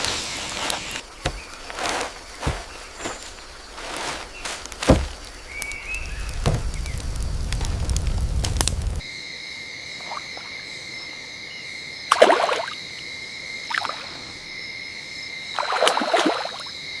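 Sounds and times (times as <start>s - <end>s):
loud crackling noise: 0.0s - 9.0s
night insects chorus: 0.0s - 17.0s
frogs croaking: 9.0s - 17.0s.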